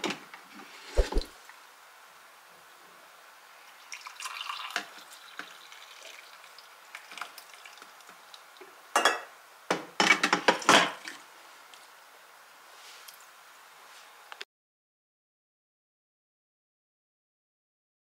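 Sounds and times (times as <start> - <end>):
kitchenware clinking: 9.0 - 9.3.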